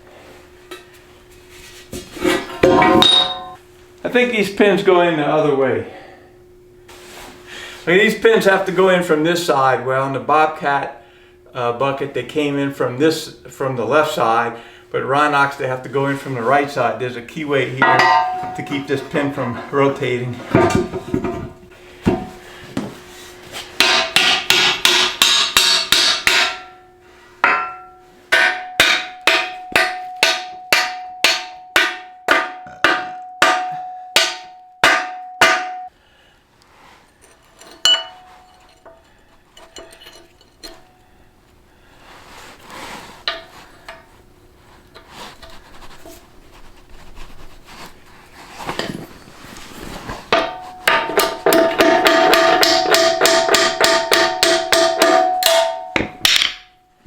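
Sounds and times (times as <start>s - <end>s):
hammer striking metal pin: 2.6s - 3.6s, 17.8s - 18.6s, 23.8s - 26.8s, 27.4s - 35.9s, 37.6s - 39.0s, 50.4s - 56.8s.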